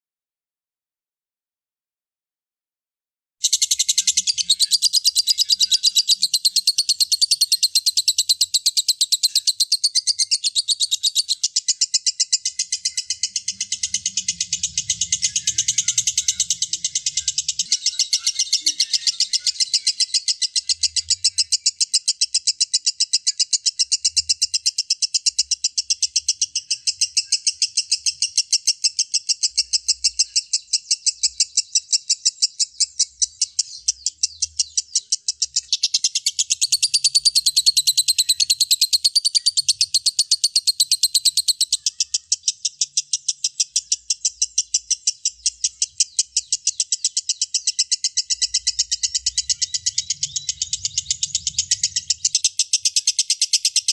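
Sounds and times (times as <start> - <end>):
lovebird chattering: 3.4 - 53.9
higher busier bird notes: 9.2 - 21.4.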